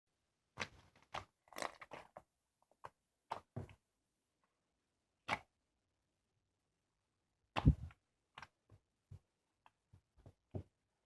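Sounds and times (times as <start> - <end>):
slime popping and crackling: 0.6 - 2.3.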